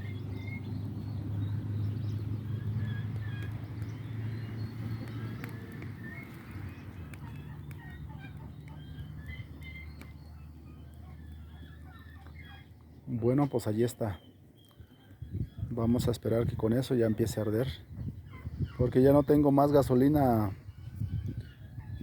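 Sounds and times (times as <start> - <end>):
fire crackling: 0.0 - 14.9
fire flaring with low roar: 0.0 - 22.0
small birds chirping: 0.0 - 22.0
chickens clucking: 5.0 - 10.1.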